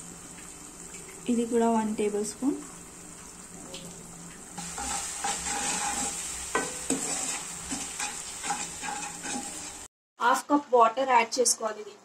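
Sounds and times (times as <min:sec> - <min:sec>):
food sizzling in oil: 0:00.0 - 0:10.4
spatula scraping pan: 0:04.6 - 0:09.9.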